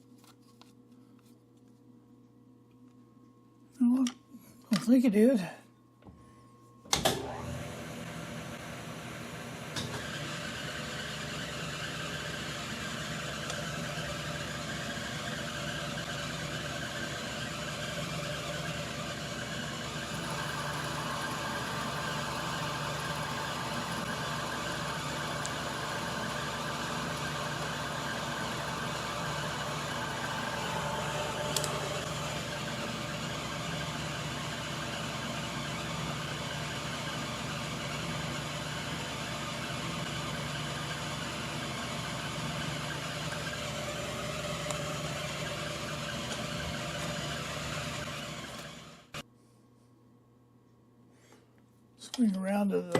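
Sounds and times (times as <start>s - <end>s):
lathe motor running: 7.2s - 49.2s
lathe switch click: 31.5s - 31.8s.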